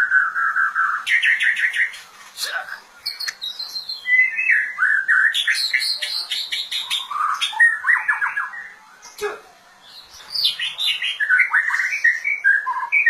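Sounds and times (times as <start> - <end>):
songbird singing whistles: 0.0 - 2.0, 3.0 - 8.8, 9.9 - 13.0.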